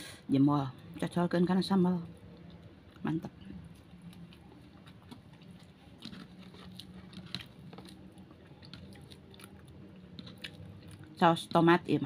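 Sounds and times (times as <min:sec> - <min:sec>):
faint steady hum: 0:00.0 - 0:12.0
person chewing food: 0:02.1 - 0:11.6.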